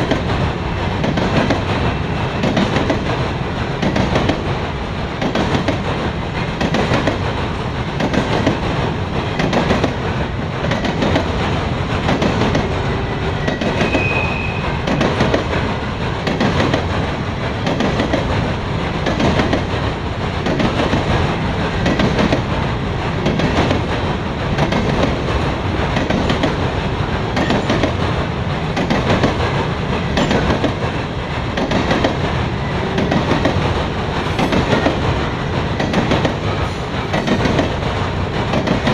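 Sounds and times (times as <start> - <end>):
train wheels clacking over rail joints: 0.0 - 38.9
wheel squeal: 13.3 - 14.8.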